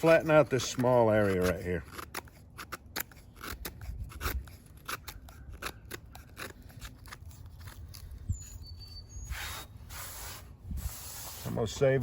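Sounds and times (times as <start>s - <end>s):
knife blade shaving dry wood: 0.0s - 12.0s.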